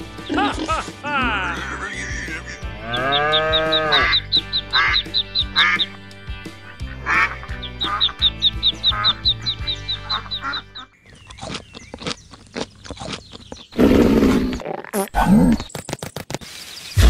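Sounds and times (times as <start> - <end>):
background music: 0.0 - 11.0
ducklings peeping: 2.0 - 13.8
duck quacks: 3.6 - 5.9, 6.6 - 8.3, 9.9 - 10.9.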